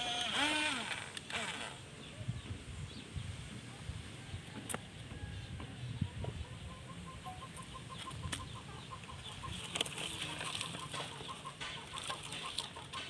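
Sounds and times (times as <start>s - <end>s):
chickens clucking: 3.7s - 13.0s.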